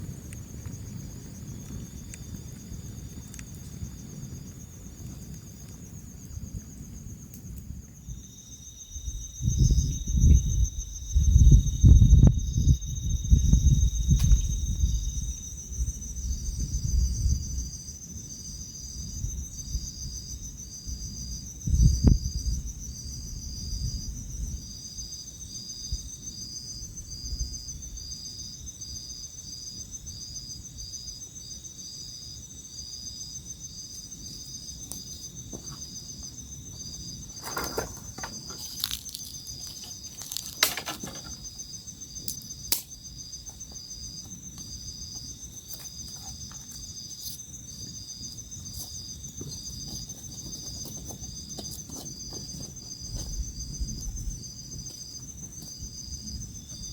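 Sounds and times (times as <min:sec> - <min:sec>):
crickets trilling: 0:00.0 - 0:56.9
pulsing cricket chirp: 0:00.0 - 0:56.9
thump: 0:37.4 - 0:38.7.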